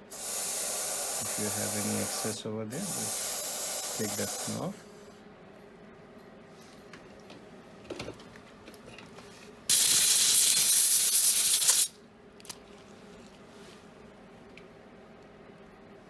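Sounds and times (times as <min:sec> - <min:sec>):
dental air syringe blowing: 0:00.0 - 0:04.6, 0:09.7 - 0:11.9.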